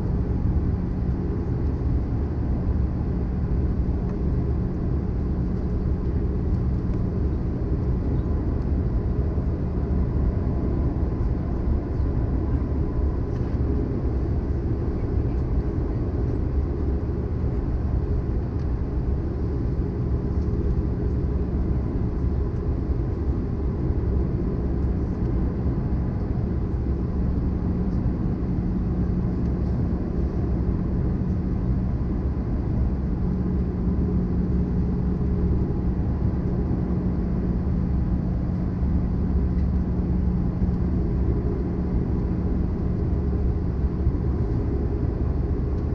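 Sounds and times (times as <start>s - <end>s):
jet engine rumble in cabin: 0.0s - 45.9s.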